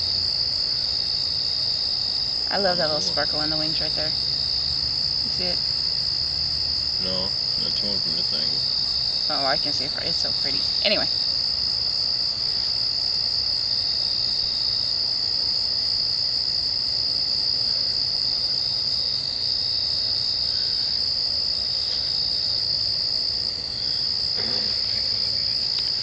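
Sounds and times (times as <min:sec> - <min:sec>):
insects trilling: 0:00.0 - 0:26.0.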